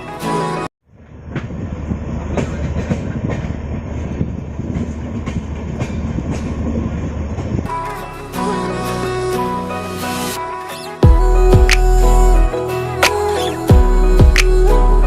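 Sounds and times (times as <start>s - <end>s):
music: 0.0s - 0.7s, 7.7s - 15.0s
train rumbling on tracks: 0.9s - 7.7s
wheels clacking over rail joints: 0.9s - 7.7s.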